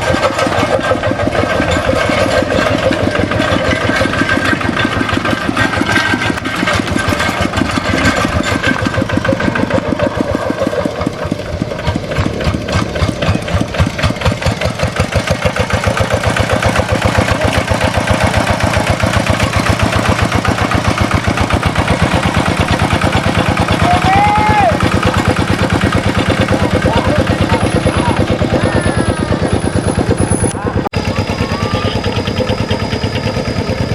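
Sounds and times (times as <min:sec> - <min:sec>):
tractor engine putter: 0:00.0 - 0:33.9
whistle-like tone: 0:28.7 - 0:33.9.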